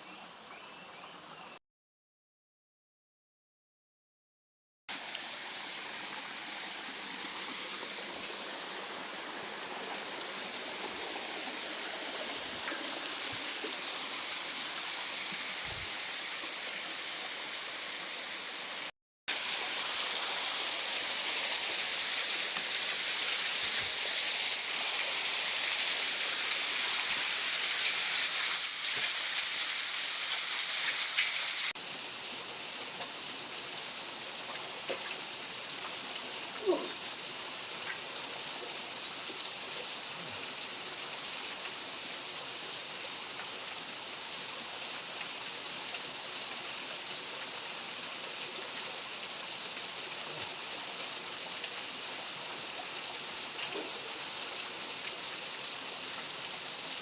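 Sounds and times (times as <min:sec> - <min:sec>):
waterfall rushing: 0:05.0 - 0:31.8.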